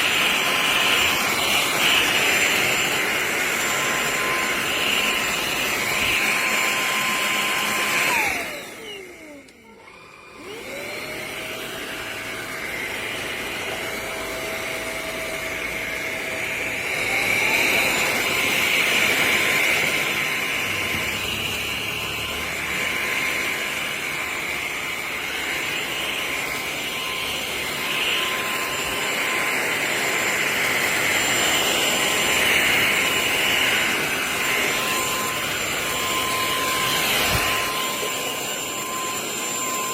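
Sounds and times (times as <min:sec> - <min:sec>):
stick vacuum running: 0:00.0 - 0:39.9.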